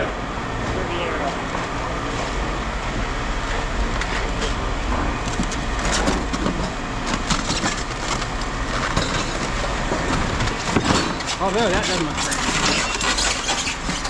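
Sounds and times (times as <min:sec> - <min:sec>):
objects clattering and knocking: 0:04.0 - 0:14.0.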